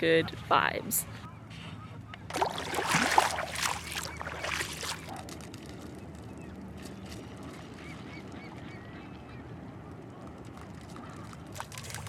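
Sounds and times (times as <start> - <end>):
low outdoor background: 0.0 - 12.0
faint bird calls: 1.0 - 5.2
splashing through shallow water: 2.3 - 5.8, 11.1 - 12.0.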